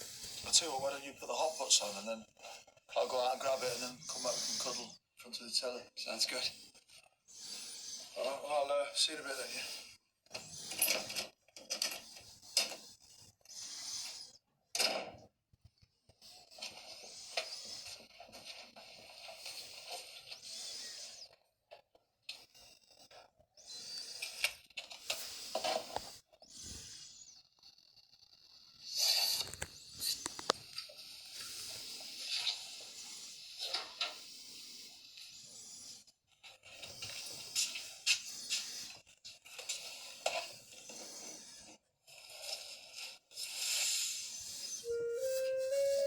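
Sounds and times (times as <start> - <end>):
objects rustling and scraping: 29.2 - 31.0.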